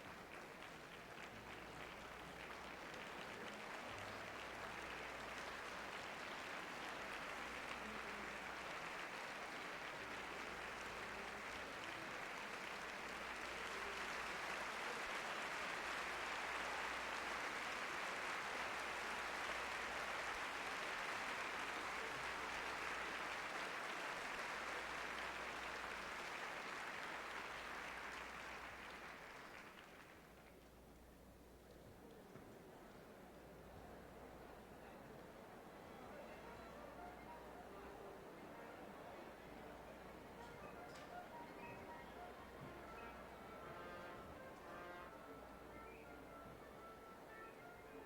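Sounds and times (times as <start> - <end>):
audience applauding: 0.0 - 30.6, 35.8 - 48.0.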